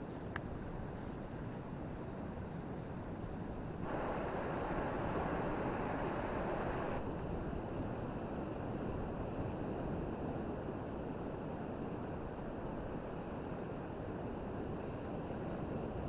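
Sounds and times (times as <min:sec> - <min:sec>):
wind: 0:00.0 - 0:16.0
wind buffeting microphone: 0:03.0 - 0:16.0
surf: 0:03.8 - 0:16.0.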